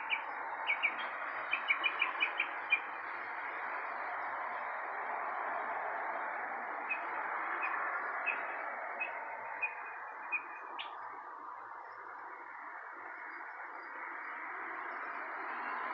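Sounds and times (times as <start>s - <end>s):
bird chirping: 0.0s - 3.0s.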